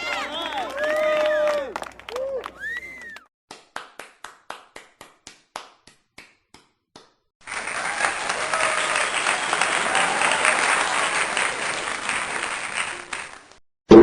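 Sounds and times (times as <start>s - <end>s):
crowd applause: 0.0s - 3.3s, 7.4s - 13.6s.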